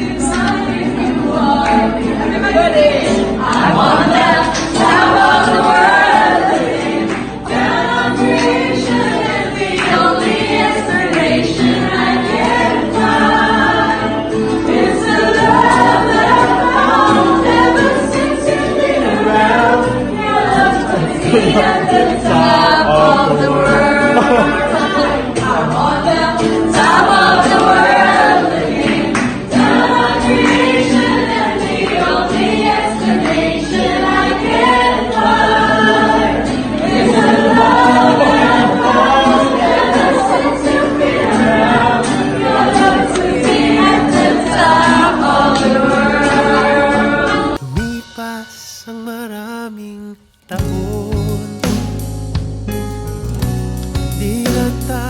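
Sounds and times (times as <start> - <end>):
choir singing gospel song: 0.0 - 48.9.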